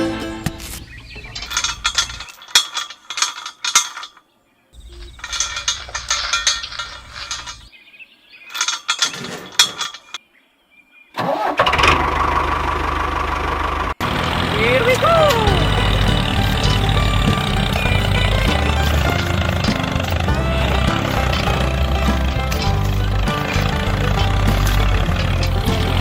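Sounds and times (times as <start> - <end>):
small engine cranking and sputtering: 11.3 - 26.0
small engine running: 11.7 - 26.0.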